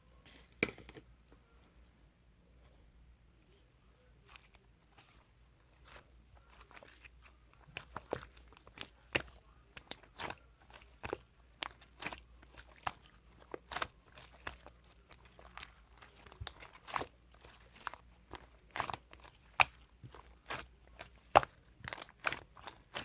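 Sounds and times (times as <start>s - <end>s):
slime squishing with crunchy clicks: 4.0s - 23.0s.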